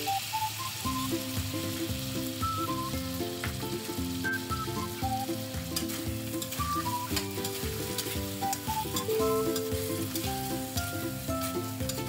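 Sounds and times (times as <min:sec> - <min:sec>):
instrumental melody: 0:00.0 - 0:12.0
ribs sizzling in a wok: 0:00.0 - 0:12.0
utensil clicking against wok: 0:05.0 - 0:12.0.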